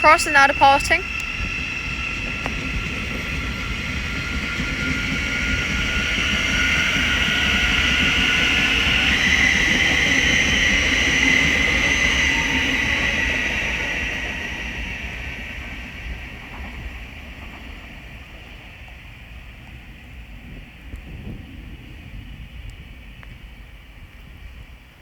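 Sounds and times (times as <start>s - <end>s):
electric train motor whine: 0.0s - 17.8s.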